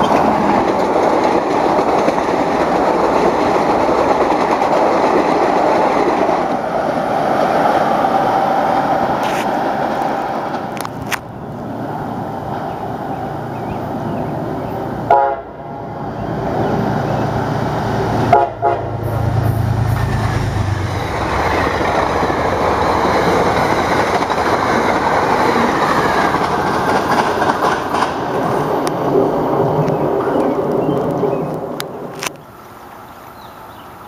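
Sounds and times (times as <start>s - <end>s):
train rumbling past: 0.0s - 34.0s
train horn blasts: 15.1s - 15.8s, 18.3s - 19.6s.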